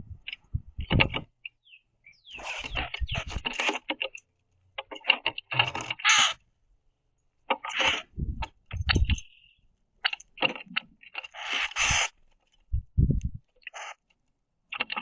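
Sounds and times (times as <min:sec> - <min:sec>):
birds giving harsh growling calls: 0:00.8 - 0:04.0, 0:05.4 - 0:06.4, 0:07.6 - 0:08.2, 0:11.1 - 0:12.2, 0:13.6 - 0:14.0
wing flutters: 0:02.4 - 0:04.1, 0:11.1 - 0:12.8.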